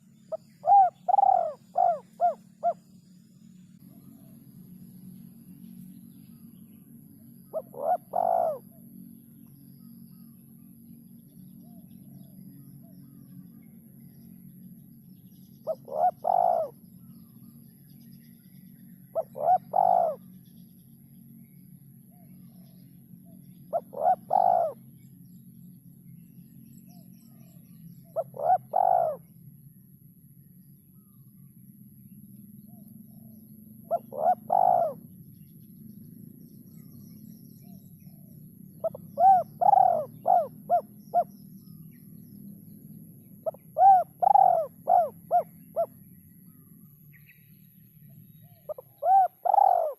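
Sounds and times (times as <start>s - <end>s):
dove cooing: 0.0s - 2.8s, 7.5s - 8.8s, 15.6s - 16.8s, 19.2s - 20.2s, 23.7s - 24.8s, 28.2s - 29.2s, 33.8s - 35.1s, 38.1s - 41.3s, 43.4s - 46.0s, 48.4s - 49.9s.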